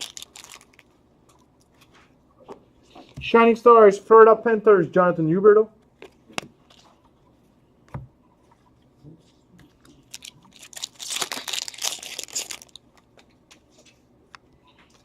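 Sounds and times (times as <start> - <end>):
wrapper crinkling and tearing: 0.0 - 0.9, 10.1 - 13.1.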